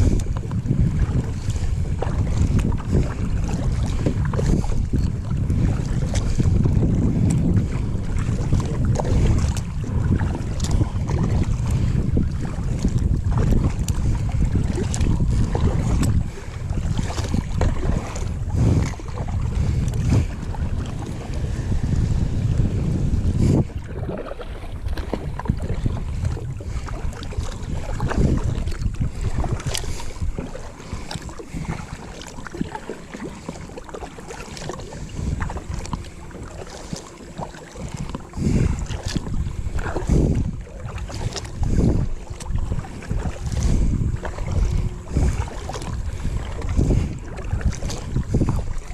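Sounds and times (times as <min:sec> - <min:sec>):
water lapping around kayak: 0:00.0 - 0:48.9
wind buffeting microphone: 0:00.0 - 0:48.9
small clicks and splashes: 0:08.5 - 0:11.9, 0:12.7 - 0:16.2, 0:24.0 - 0:25.5, 0:42.4 - 0:45.9.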